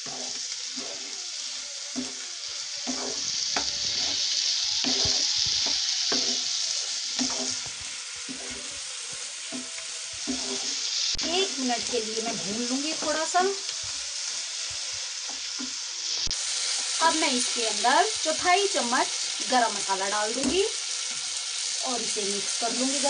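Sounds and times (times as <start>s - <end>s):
spatula scraping a pan: 0.0s - 21.8s
vegetables sizzling in oil: 0.0s - 23.0s.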